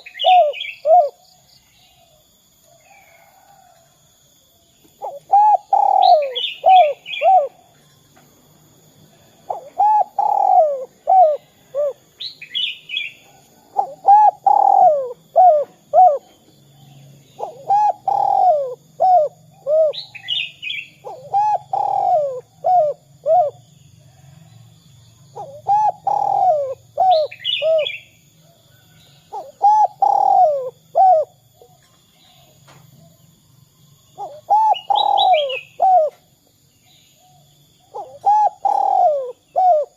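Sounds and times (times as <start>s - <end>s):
dove cooing: 0.0s - 1.3s, 5.0s - 7.8s, 9.2s - 16.5s, 17.3s - 24.3s, 25.3s - 33.2s, 34.2s - 36.3s, 37.2s - 39.9s.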